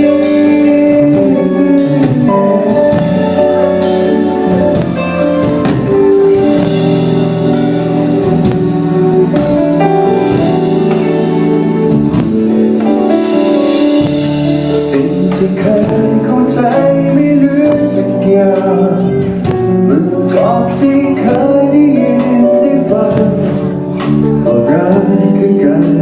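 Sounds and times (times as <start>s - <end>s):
bass: 0.0s - 26.0s
sustained keyboard chords: 0.0s - 26.0s.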